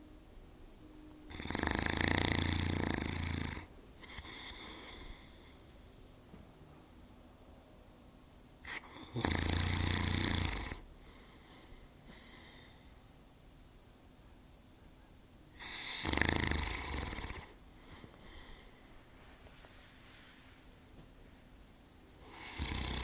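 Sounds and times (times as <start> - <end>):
dog snoring loudly: 1.3 - 5.2, 8.6 - 10.9, 15.6 - 17.6, 22.2 - 23.0
faint breathing: 2.6 - 6.1, 10.8 - 13.2, 16.7 - 21.0.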